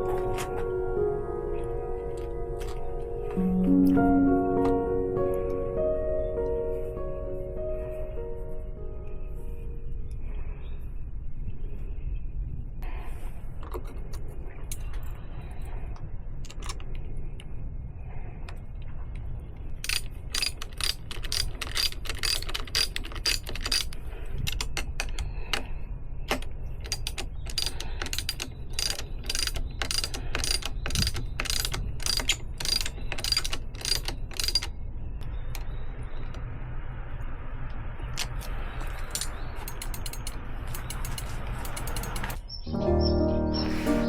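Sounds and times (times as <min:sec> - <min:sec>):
ratchet wrench clicking: 0:19.8 - 0:25.2, 0:26.8 - 0:34.7, 0:38.2 - 0:42.4
tool-handling clicks: 0:19.8 - 0:25.7, 0:26.3 - 0:34.8, 0:38.1 - 0:42.4.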